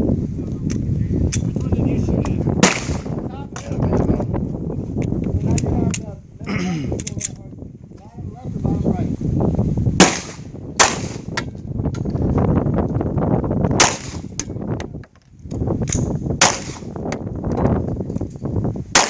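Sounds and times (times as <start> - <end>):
pistol shots: 2.6 - 3.2, 10.0 - 11.3, 13.8 - 14.3, 16.4 - 16.9.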